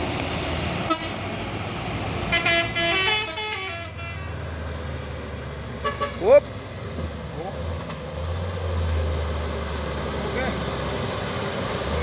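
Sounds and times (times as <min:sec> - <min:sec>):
multi-note vehicle horn tune: 0:02.3 - 0:04.4, 0:05.8 - 0:06.2.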